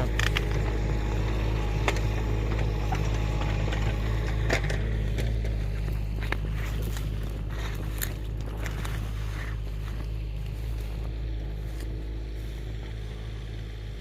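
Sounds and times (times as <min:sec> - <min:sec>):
sharp clicks and knocks: 0:00.0 - 0:10.1
excavator engine droning: 0:00.0 - 0:14.0.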